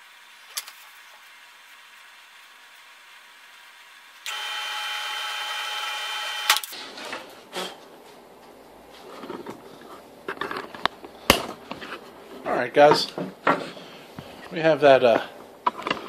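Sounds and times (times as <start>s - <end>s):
drill press whining: 0.0s - 6.8s.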